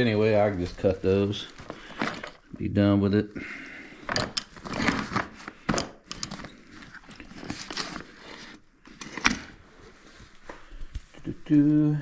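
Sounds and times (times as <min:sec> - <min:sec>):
handling clicks and knocks: 0:04.1 - 0:05.0.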